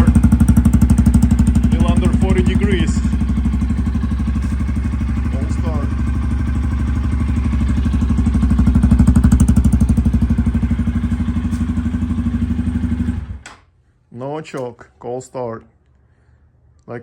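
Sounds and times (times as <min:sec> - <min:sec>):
motorcycle engine idling: 0:00.0 - 0:13.4.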